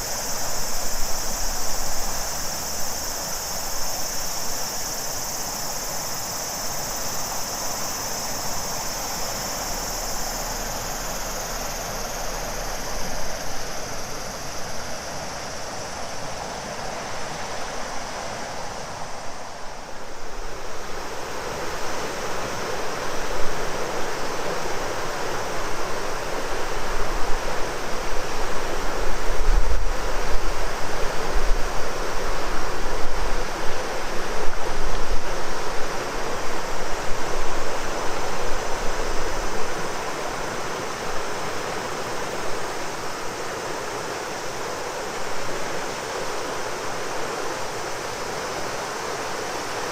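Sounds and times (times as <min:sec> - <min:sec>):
cicadas droning: 0:00.0 - 0:49.9
river water rushing: 0:00.0 - 0:49.9.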